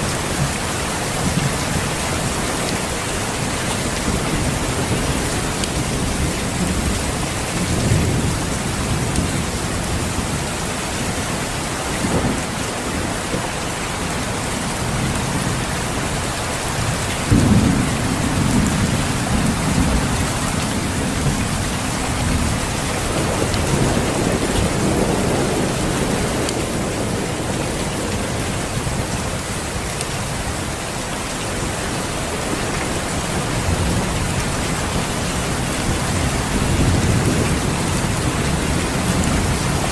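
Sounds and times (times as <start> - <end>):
heavy rain hiss: 0.0 - 39.9
thunder rumbling: 0.2 - 29.9, 32.3 - 39.9
sharp thunderclap: 17.3 - 27.5.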